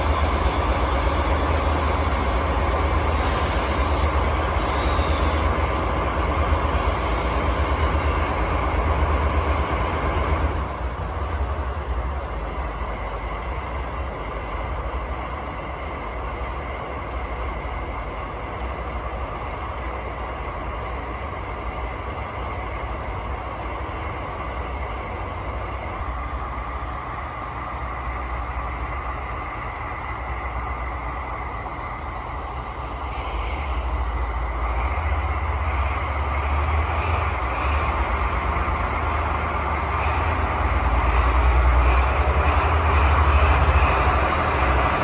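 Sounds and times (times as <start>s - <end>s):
diesel locomotive engines running: 0.0s - 45.0s
hiss: 0.1s - 5.6s.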